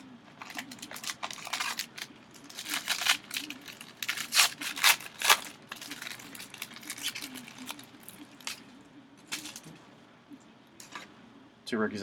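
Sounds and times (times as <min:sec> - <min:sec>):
wrapper crinkling and tearing: 0:00.4 - 0:09.8.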